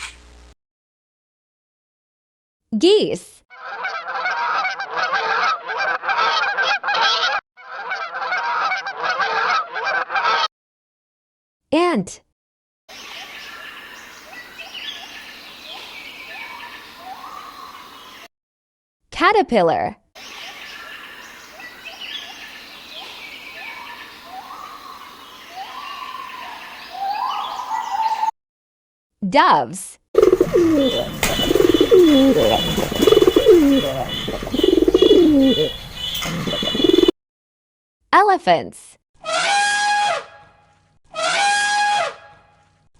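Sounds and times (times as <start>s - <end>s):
geese honking: 3.6s - 10.5s, 20.8s - 28.3s, 30.2s - 37.1s
outdoor background hiss: 13.0s - 18.2s, 20.2s - 27.6s
birds chirping and calling: 13.0s - 18.3s, 20.2s - 28.3s, 30.2s - 37.1s.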